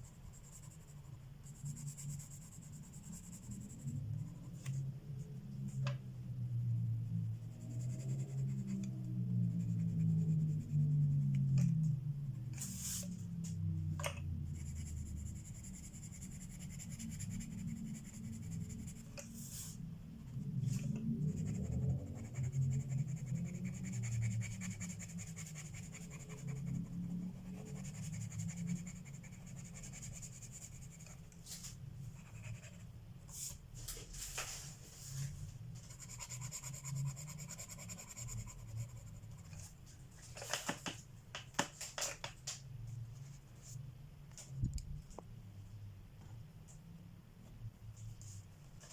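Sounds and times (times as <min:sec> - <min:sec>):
pencil scratching on paper: 0:00.0 - 0:04.8, 0:07.3 - 0:11.3, 0:14.5 - 0:31.3, 0:32.1 - 0:33.6, 0:35.8 - 0:39.7.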